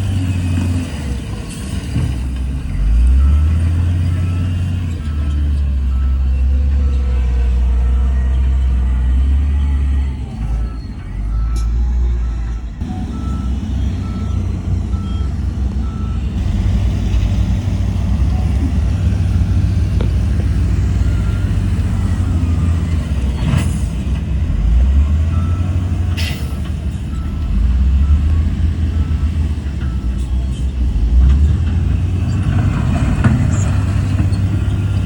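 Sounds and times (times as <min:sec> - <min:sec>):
diesel machinery rumbling: 0:00.0 - 0:35.0
reversing alarm beeps: 0:02.8 - 0:16.3, 0:25.0 - 0:25.8, 0:26.4 - 0:30.7.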